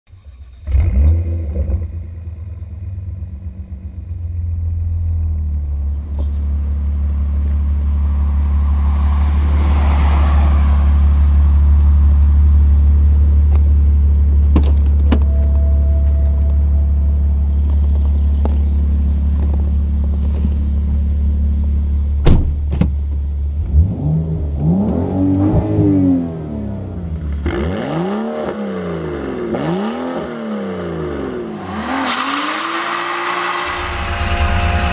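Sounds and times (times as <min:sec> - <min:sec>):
car engine starting and idling: 0:00.1 - 0:27.5
car engine revving: 0:05.8 - 0:22.3, 0:23.5 - 0:34.9
car door clicks and clunks: 0:14.5 - 0:16.6, 0:22.2 - 0:23.2.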